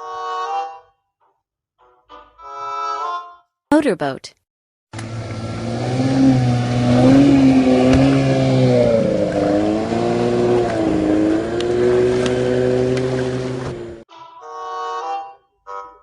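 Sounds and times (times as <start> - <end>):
motorboat engine drone: 5.0 - 14.0.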